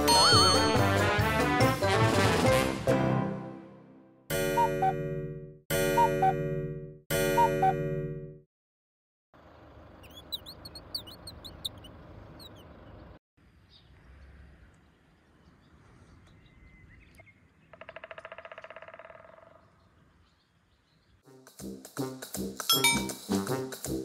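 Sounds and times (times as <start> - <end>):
small birds chirping: 9.4 - 18.3, 19.2 - 21.2
outdoor background noise: 9.4 - 21.2.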